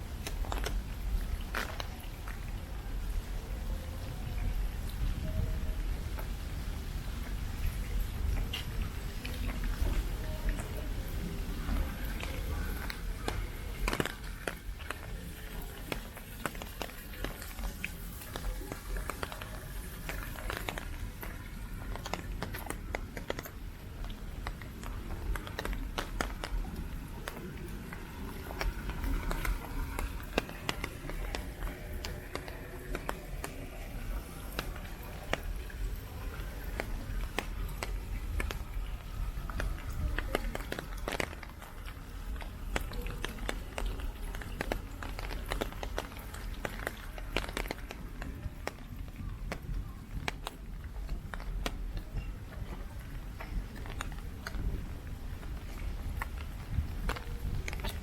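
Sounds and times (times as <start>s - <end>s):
heavy raindrops ticking: 0.0s - 58.0s.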